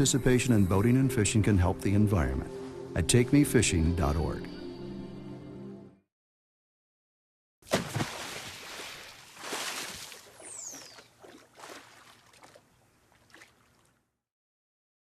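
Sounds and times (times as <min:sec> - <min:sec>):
water splashing and rushing: 0:07.7 - 0:13.9.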